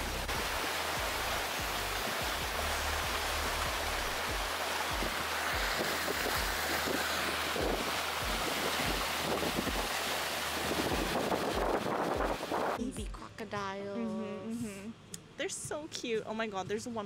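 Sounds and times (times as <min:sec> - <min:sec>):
water rushing: 0:00.0 - 0:12.8
wind buffeting microphone: 0:04.2 - 0:12.8.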